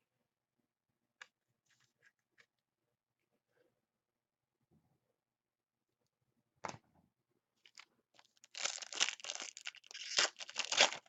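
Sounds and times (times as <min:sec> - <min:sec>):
wrapper being torn open: 0:07.7 - 0:11.0
wrapper crinkling: 0:07.7 - 0:11.0.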